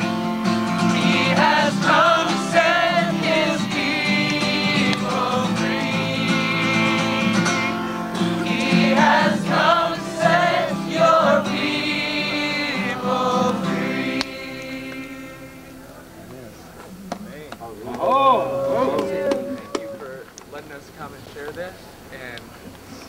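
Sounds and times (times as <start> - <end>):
group of voices singing: 0.0 - 16.1, 18.1 - 20.1
guitar accompaniment: 0.0 - 20.3.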